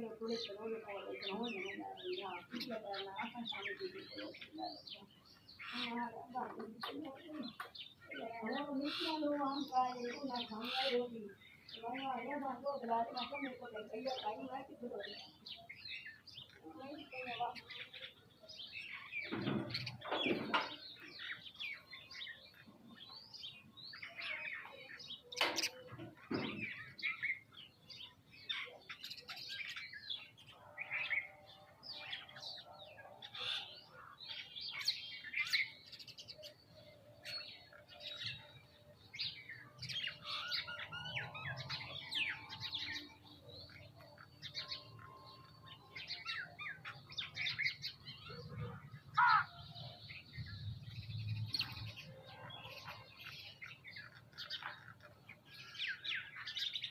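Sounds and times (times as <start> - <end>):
birds chirping and calling: 0.0 - 56.9.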